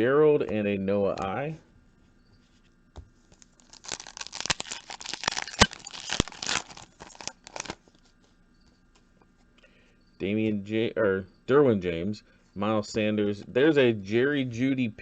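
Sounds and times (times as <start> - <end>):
foil wrapper tearing and crinkling: 3.4 - 7.8.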